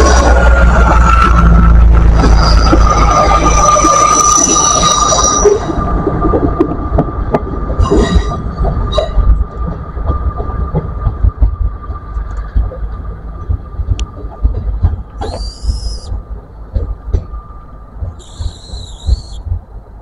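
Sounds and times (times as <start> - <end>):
steady high whine: 0.0 - 20.0
train rumble and wheel noise: 0.0 - 20.0
wheels clicking on rails: 0.0 - 20.0
brief high squeaks: 15.2 - 16.1, 18.2 - 19.4.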